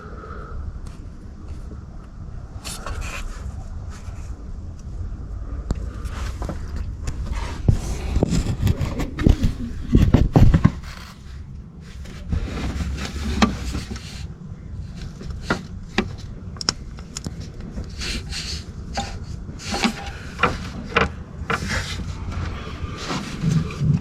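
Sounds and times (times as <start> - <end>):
rubbing sounds: 6.1 - 14.3.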